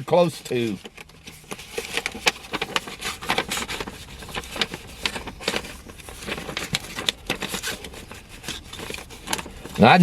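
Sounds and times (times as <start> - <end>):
paper crinkling: 0.1 - 10.0.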